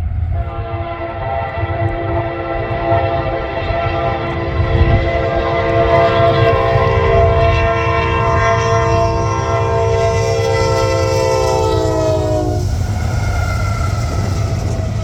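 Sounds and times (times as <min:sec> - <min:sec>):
locomotive horn: 0:00.0 - 0:15.0
train rumble: 0:00.0 - 0:15.0.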